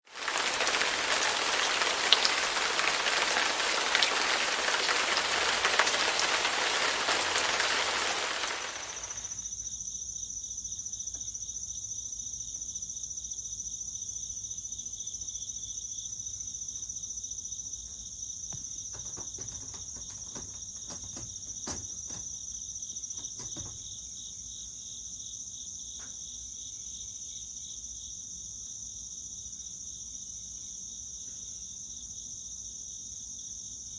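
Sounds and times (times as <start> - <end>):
loud even hiss: 0.0 - 9.4
insect chorus trilling: 0.1 - 11.0.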